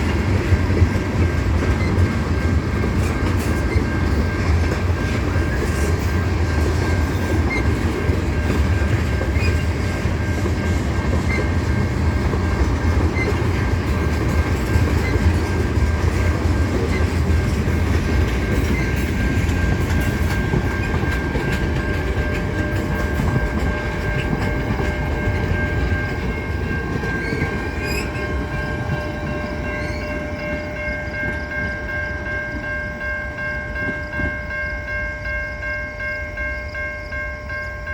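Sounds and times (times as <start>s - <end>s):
train wheels clacking over rail joints: 0.0s - 31.9s.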